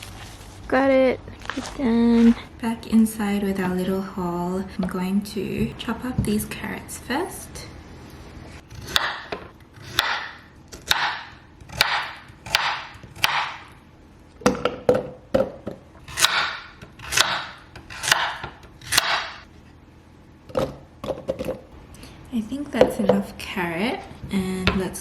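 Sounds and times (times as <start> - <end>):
knife chopping carrots on board: 8.8 - 13.6, 16.1 - 19.4.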